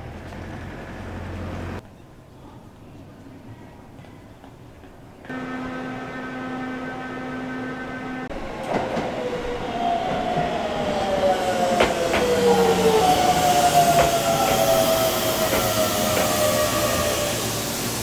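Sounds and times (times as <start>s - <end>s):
train traction motors whining: 5.3s - 18.0s.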